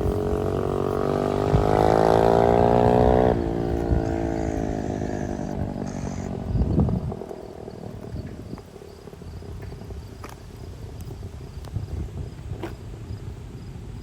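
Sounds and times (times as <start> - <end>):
dirt bike engine revving: 0.0 - 8.6.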